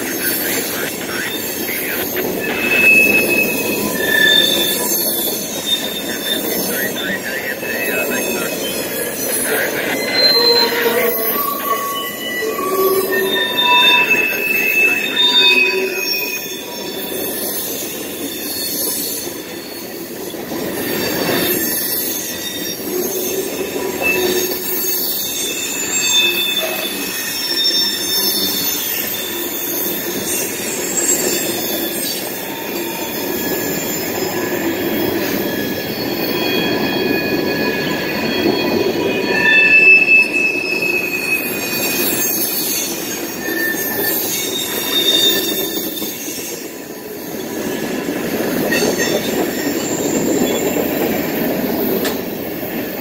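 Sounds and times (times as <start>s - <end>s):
freight train rolling past: 0.0s - 53.0s
wheels squealing against rails: 0.0s - 53.0s.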